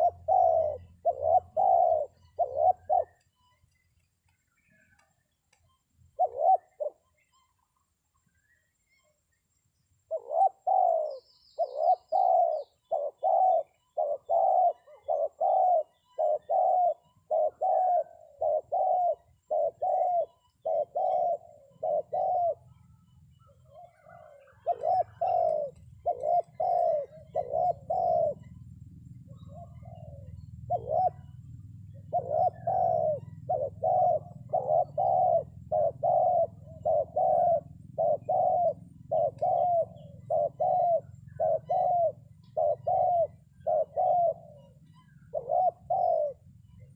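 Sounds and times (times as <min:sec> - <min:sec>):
dove decoy call cooing: 0:00.0 - 0:03.3, 0:06.1 - 0:07.6, 0:10.1 - 0:46.9
low steady rumble: 0:24.6 - 0:46.9.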